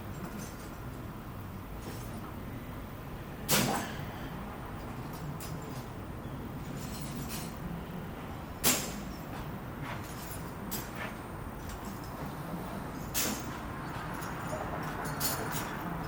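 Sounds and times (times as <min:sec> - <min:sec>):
metal poles clanging: 0:13.0 - 0:16.0.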